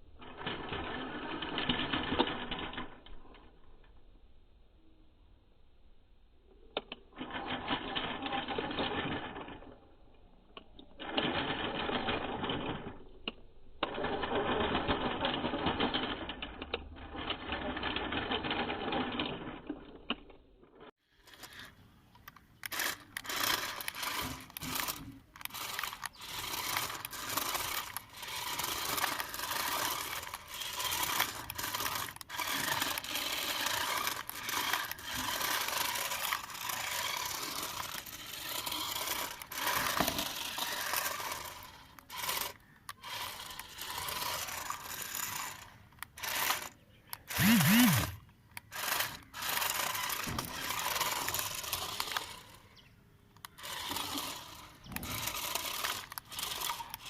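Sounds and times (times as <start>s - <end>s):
scraping and crackling clicks: 10.5s - 57.0s
small electric motor whirring: 21.2s - 52.8s, 53.4s - 57.0s.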